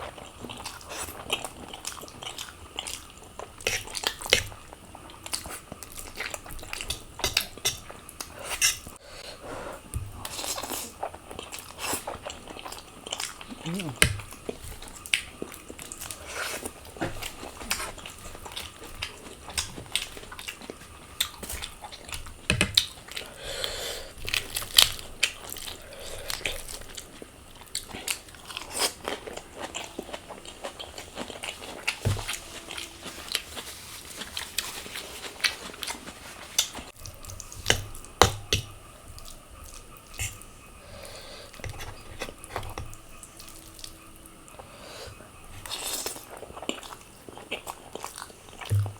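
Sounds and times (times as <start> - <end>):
biting and chewing: 9.7 - 48.9.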